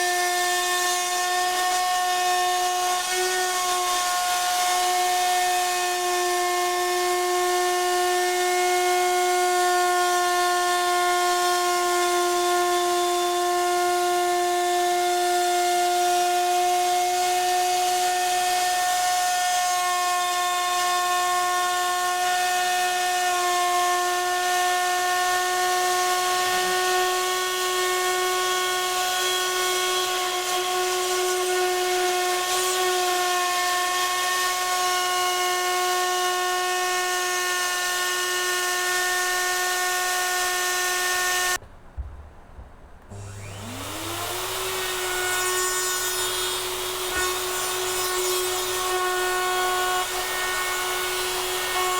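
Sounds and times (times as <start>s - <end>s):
router spindle whining: 43.1s - 51.9s.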